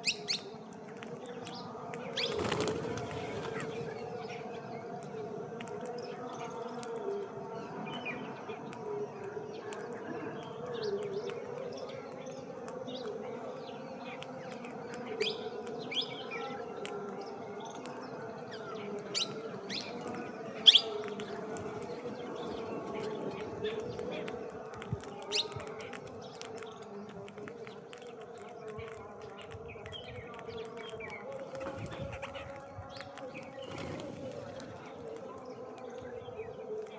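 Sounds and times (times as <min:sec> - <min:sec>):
birds chirping: 0:00.0 - 0:36.9.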